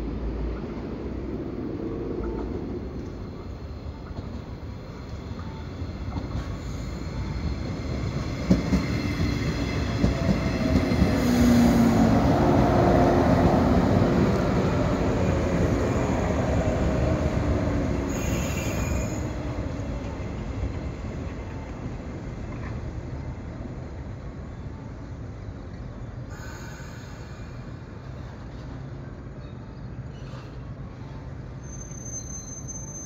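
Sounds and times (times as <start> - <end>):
electric train passing: 0.0 - 29.3
train brakes squealing: 5.1 - 7.9, 18.1 - 19.4, 26.3 - 28.8, 29.4 - 33.0.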